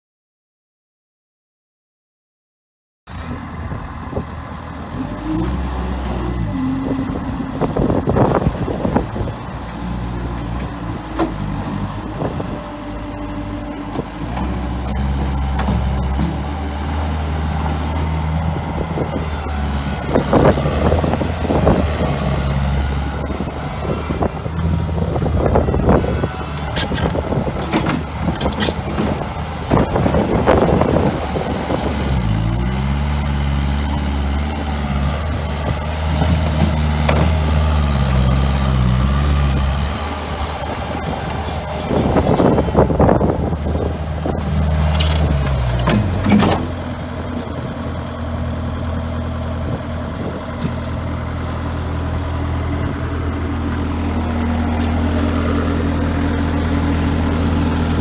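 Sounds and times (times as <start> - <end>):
diesel engine running: 3.1 - 58.0
rattling and clanking: 40.5 - 46.9.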